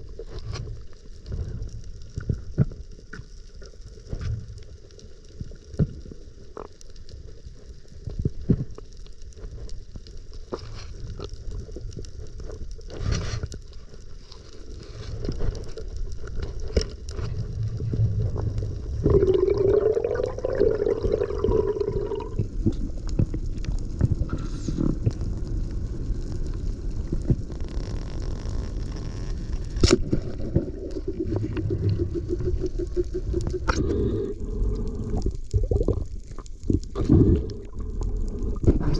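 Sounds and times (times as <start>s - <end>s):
clicks and crackles: 0.0s - 38.9s
underwater churning rumble: 17.1s - 38.9s
bubbling gurgle: 17.3s - 23.6s, 28.4s - 38.9s.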